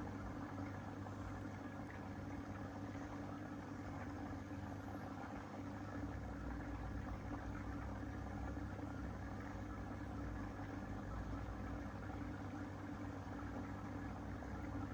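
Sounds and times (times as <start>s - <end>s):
aquarium pump humming: 0.0s - 14.9s.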